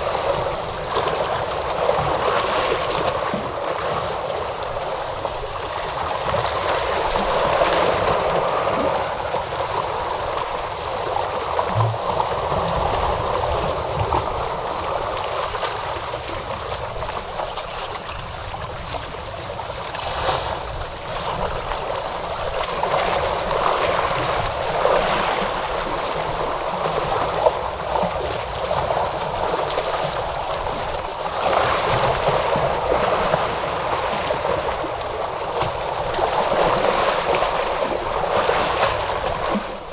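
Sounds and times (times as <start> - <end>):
ocean surf washing in: 0.0 - 17.3.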